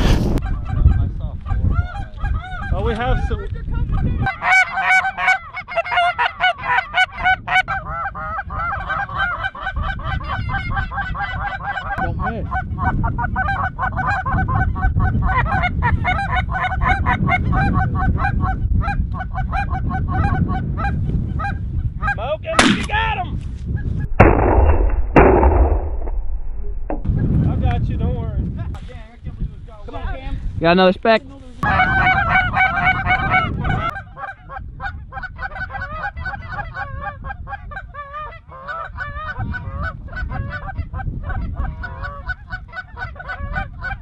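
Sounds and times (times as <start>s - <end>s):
goose call honks and clucks: 0.4s - 2.9s, 3.9s - 22.2s, 31.6s - 44.0s
shotgun blasts: 22.6s - 23.0s, 24.1s - 26.4s
low rumble: 23.6s - 28.6s.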